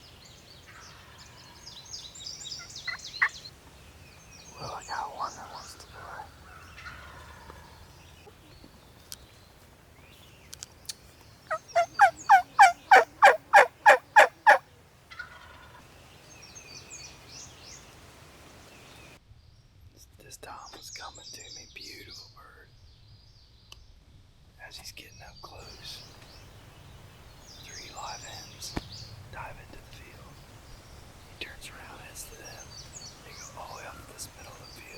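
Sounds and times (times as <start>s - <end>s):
small songbirds chirping: 0.0s - 34.9s
turkey gobbling: 2.8s - 3.4s, 6.6s - 7.8s, 11.5s - 15.8s
turkey yelping: 11.5s - 15.8s.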